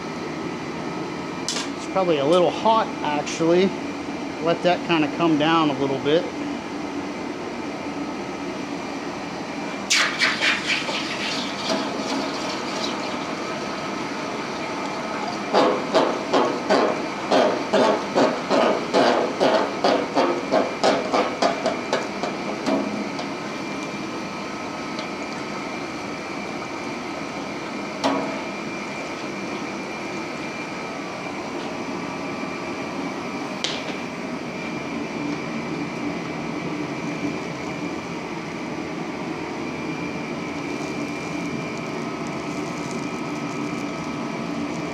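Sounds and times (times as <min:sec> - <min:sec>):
workshop hum: 0:00.0 - 0:44.9.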